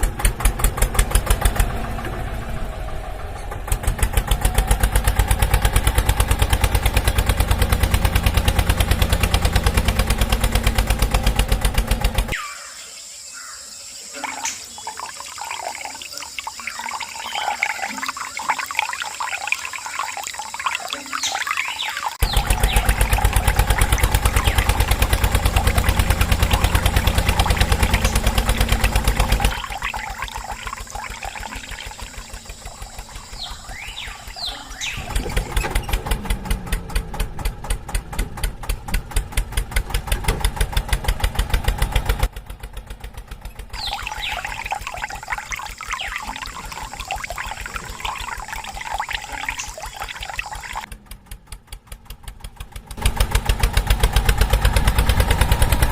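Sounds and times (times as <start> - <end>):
water pouring: 14.1 - 36.0, 43.8 - 50.9
small motor pulsing: 14.2 - 36.3, 43.8 - 50.9.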